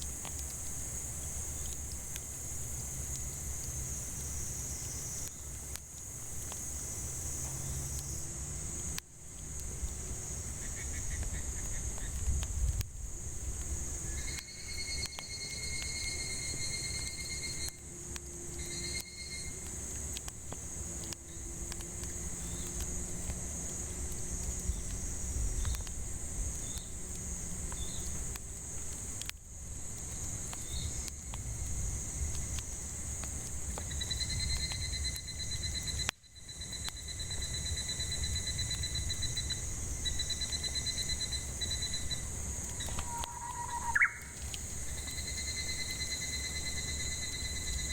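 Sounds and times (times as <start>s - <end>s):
campfire crackling: 0.0s - 47.9s
cicadas droning: 0.0s - 47.9s
pulsed trilling call: 43.0s - 44.4s.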